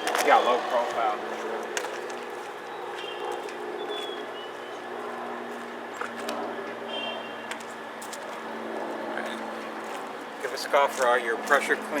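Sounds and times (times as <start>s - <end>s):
low outdoor hum: 0.0s - 12.0s
bird chirps: 2.6s - 4.9s.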